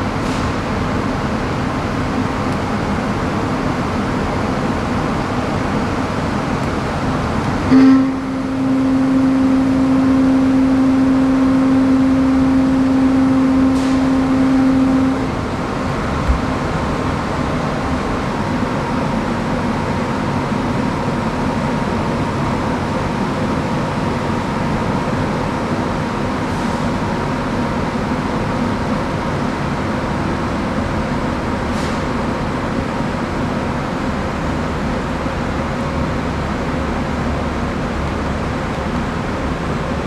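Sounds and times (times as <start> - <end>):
ship machinery hum: 0.0 - 31.6
loud pitched drone: 7.7 - 18.3
short thump: 16.2 - 16.7.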